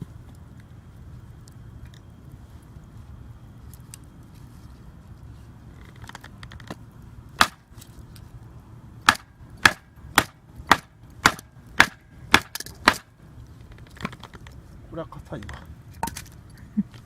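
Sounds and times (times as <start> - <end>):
blade chopping firewood: 7.4 - 7.8, 9.0 - 13.1.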